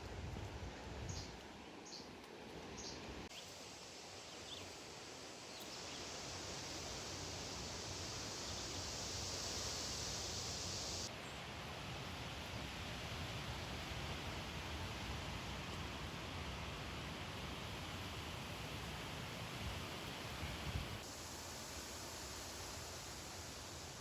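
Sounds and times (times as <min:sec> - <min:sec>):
high-pitched insect hiss: 0:03.3 - 0:11.1, 0:19.8 - 0:24.0.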